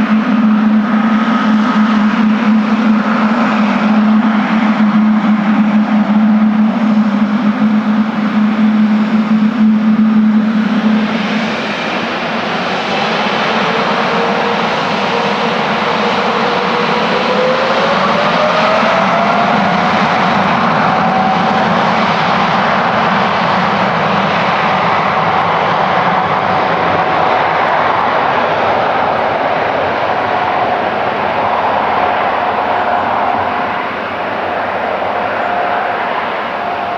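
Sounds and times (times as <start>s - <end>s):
jet engine fan whine rising: 0.0s - 36.9s
jet noise rushing: 25.0s - 36.9s.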